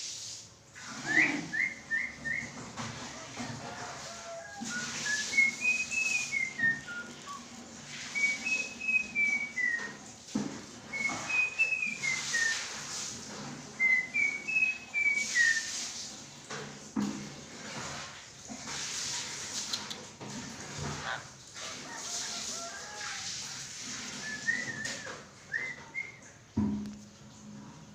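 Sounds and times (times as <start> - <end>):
harsh hissing bird chatter: 0.0 - 2.2, 4.0 - 9.5, 10.9 - 13.3, 18.7 - 20.2
bird whistling melodic phrase: 1.0 - 2.6, 4.7 - 7.4, 8.2 - 9.9, 11.0 - 12.6, 13.8 - 15.7.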